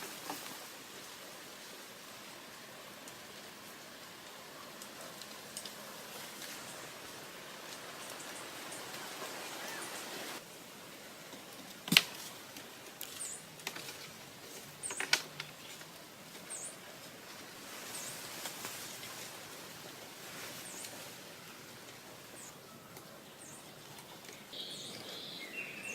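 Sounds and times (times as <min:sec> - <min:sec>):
steady hiss: 0:00.0 - 0:25.9
small bird chirping: 0:08.0 - 0:10.4, 0:22.4 - 0:25.9.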